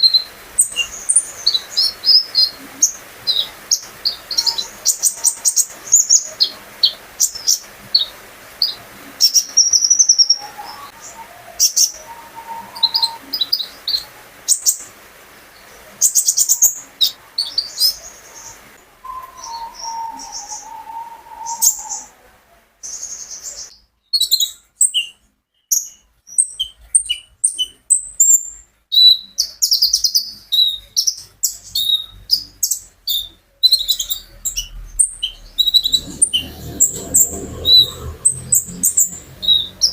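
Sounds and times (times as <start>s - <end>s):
songbird singing chirps and trills: 0.0s - 39.9s
low drawn-out whistle: 10.9s - 13.4s, 19.0s - 22.3s.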